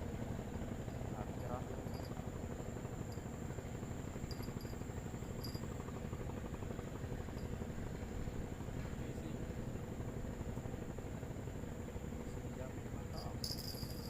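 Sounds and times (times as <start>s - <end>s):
high-pitched insect drone: 4.2s - 5.8s.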